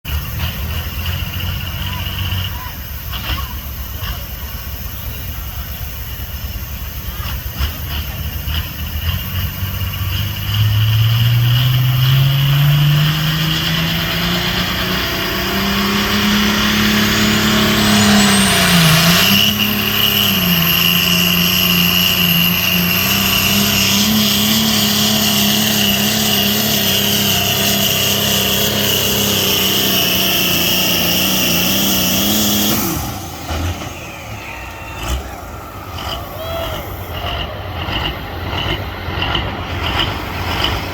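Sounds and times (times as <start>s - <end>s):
tractor engine revving: 0.0s - 40.9s
high whine: 10.4s - 40.9s.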